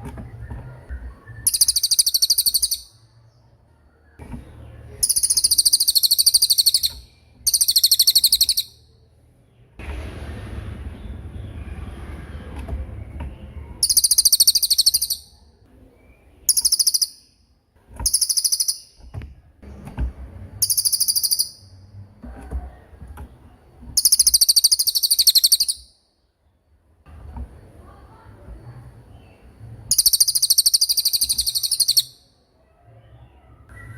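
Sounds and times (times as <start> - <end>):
soft bird chirps: 0.1 - 9.8, 10.9 - 19.5, 20.6 - 22.0, 23.3 - 26.8, 28.2 - 33.9
songbird trilling: 1.3 - 3.0, 5.0 - 8.8, 13.8 - 15.4, 16.4 - 17.4, 18.0 - 19.0, 20.6 - 21.7, 24.0 - 26.0, 29.9 - 32.3.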